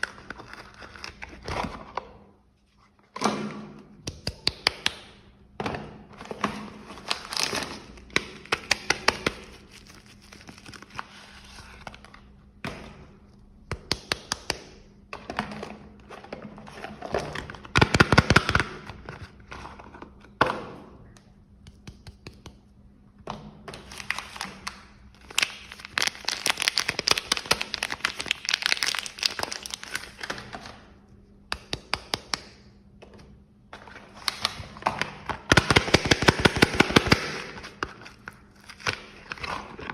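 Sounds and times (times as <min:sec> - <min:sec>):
wrappers crinkling and rustling: 0:08.6 - 0:12.3, 0:23.8 - 0:30.4.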